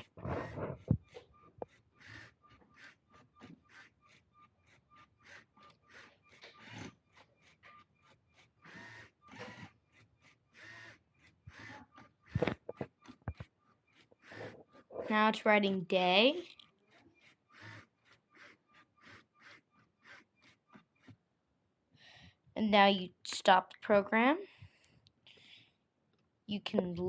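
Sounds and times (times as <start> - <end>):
pen scraping on paper: 0.0 - 1.0, 11.6 - 15.4
small motors stop-start whirring: 0.0 - 15.4, 16.4 - 21.2.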